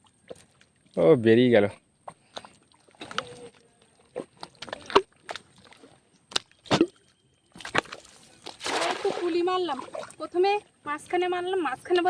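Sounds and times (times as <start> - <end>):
water splashes and knocks: 0.0 - 1.0, 2.0 - 10.4.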